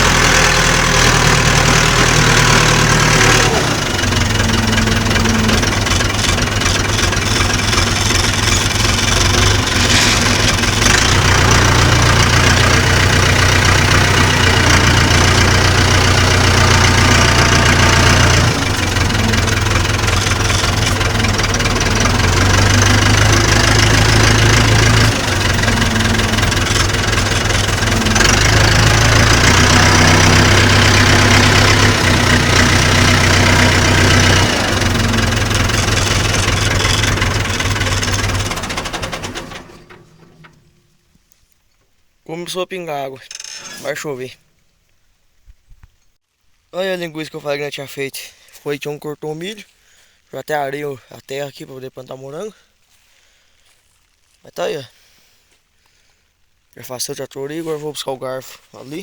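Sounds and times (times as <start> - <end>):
tractor diesel engine revving: 0.0 - 40.8, 43.3 - 44.3.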